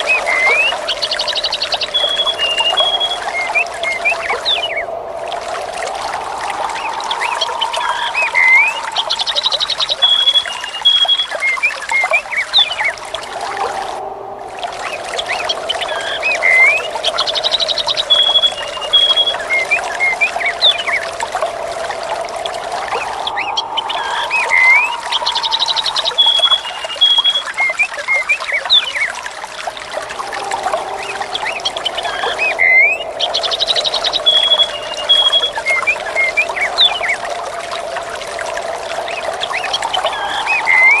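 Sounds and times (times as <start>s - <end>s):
birds chirping: 0.0s - 4.9s, 6.2s - 13.1s, 14.8s - 21.6s, 22.8s - 29.1s, 29.8s - 37.3s, 39.0s - 41.0s
trickling water: 0.0s - 41.0s
wind whooshing: 3.1s - 9.9s, 13.4s - 26.9s, 29.8s - 37.5s.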